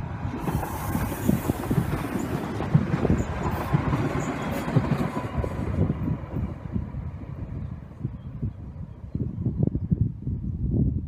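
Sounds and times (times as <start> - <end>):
train wheels clattering over track: 0.2 - 6.7.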